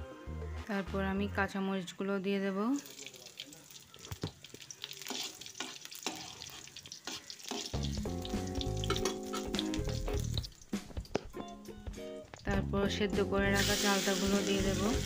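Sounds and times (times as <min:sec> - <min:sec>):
background music with held notes: 0:00.0 - 0:01.8, 0:07.7 - 0:15.0
food sizzling and popping in oil: 0:02.8 - 0:12.6, 0:13.5 - 0:15.0.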